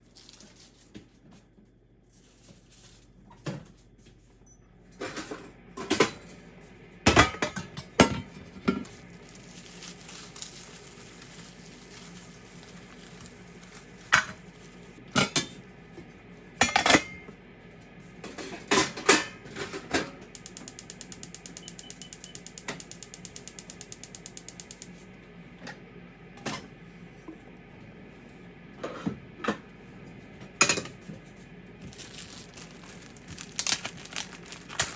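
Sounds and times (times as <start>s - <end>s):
rapid mechanical clicks: 20.4s - 24.9s.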